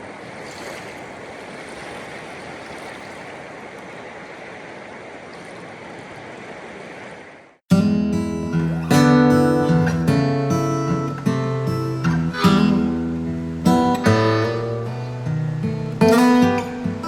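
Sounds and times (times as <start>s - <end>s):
strummed acoustic guitar chords: 7.7s - 17.0s.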